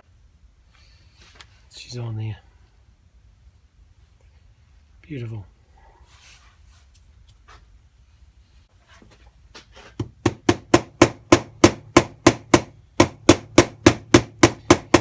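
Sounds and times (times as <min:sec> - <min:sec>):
hammer striking metal: 0:10.2 - 0:15.0.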